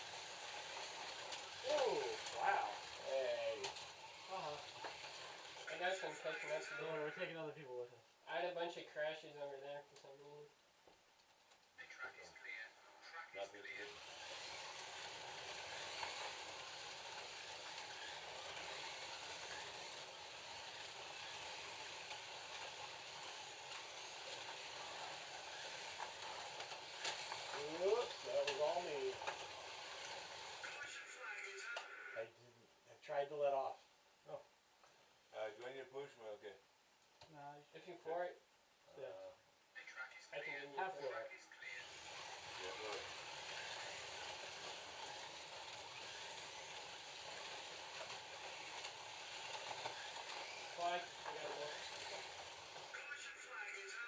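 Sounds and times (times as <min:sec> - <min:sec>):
slot cars whirring on track: 0:00.0 - 0:07.2, 0:13.3 - 0:32.2, 0:41.6 - 0:54.0
faint clicks: 0:10.9 - 0:11.8.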